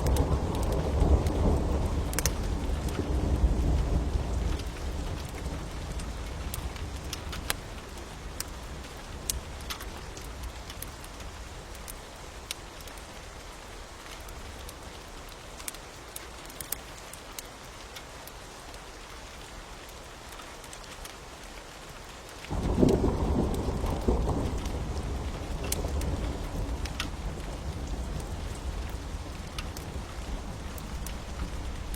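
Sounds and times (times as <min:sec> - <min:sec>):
low roll of thunder: 0:00.0 - 0:07.0, 0:22.5 - 0:31.9
crackling fire with pops: 0:00.0 - 0:13.1, 0:22.4 - 0:31.9
steady rain: 0:00.0 - 0:31.9.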